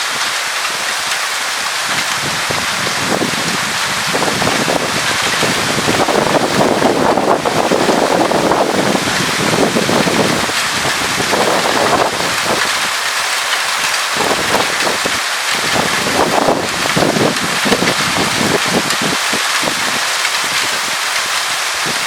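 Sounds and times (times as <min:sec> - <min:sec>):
hail and rain pelting down: 0:00.0 - 0:22.0
wind buffeting microphone: 0:01.8 - 0:13.0, 0:13.8 - 0:22.0.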